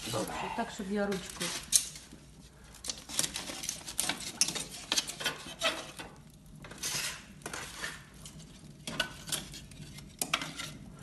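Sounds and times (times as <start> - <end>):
stove door scraping: 2.9 - 10.9.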